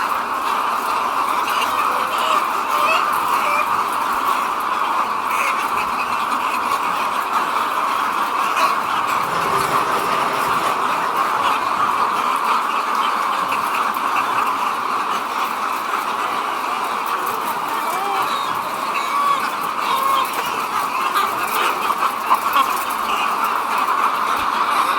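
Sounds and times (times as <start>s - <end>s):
chickens clucking chorus: 1.2s - 4.1s.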